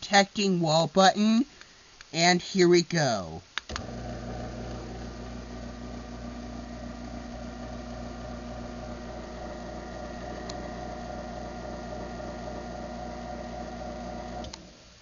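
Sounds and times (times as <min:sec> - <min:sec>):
garage door opener motor hum: 0:03.7 - 0:14.8.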